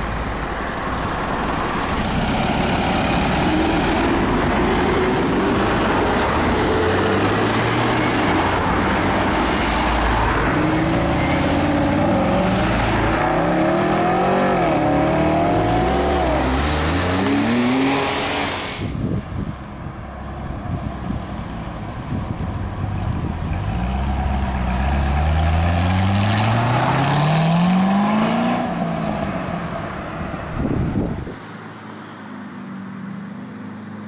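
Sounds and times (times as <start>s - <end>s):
car engine revving: 1.9s - 18.9s
car accelerating away: 2.2s - 18.9s, 23.6s - 29.2s.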